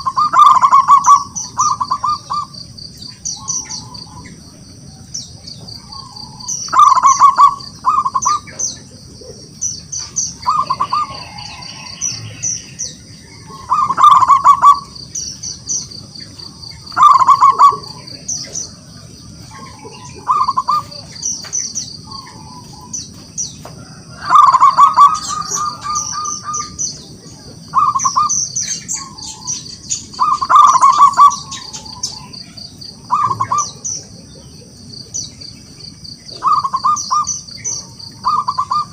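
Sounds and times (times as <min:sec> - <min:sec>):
dove cooing in trilled phrases: 0:00.0 - 0:38.9
steady high-pitched hum: 0:00.0 - 0:38.9.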